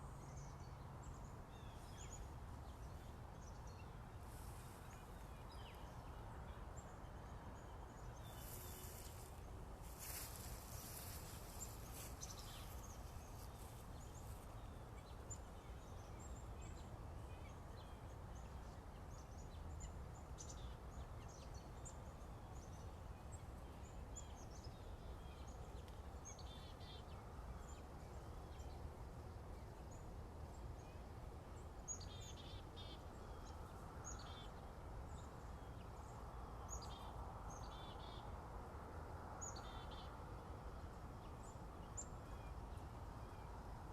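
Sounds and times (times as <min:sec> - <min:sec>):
small birds chirping: 0:08.0 - 0:27.8.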